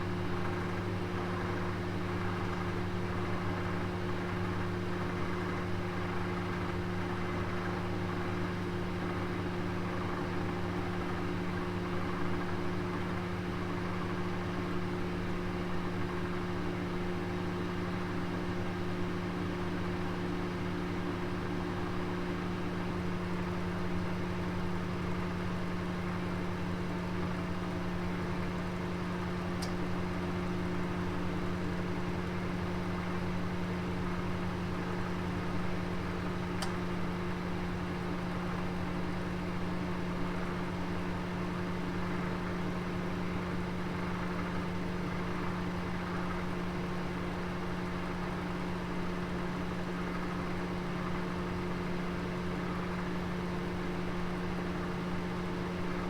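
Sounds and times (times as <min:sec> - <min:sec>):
oven humming: 0:26.2 - 0:40.8
faint oven ticks: 0:29.3 - 0:30.4, 0:36.3 - 0:37.3.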